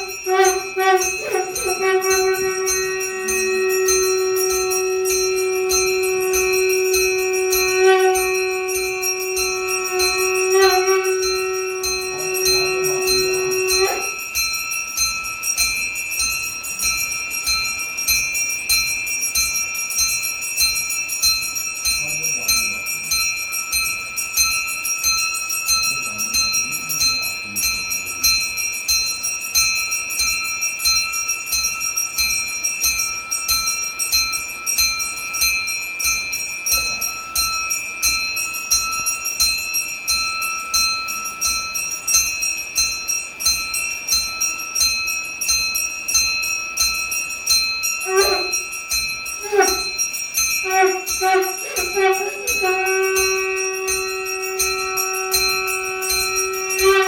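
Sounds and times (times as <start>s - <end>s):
deeper-toned bell struck: 0.0s - 14.5s
hand bell ringing rapidly: 0.0s - 57.0s.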